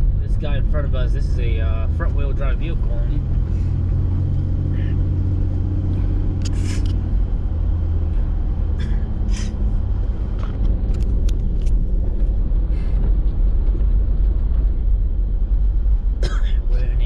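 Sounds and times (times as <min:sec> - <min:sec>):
engine and tyre rumble: 0:00.0 - 0:17.0
short clicks and scrapes: 0:06.4 - 0:07.0.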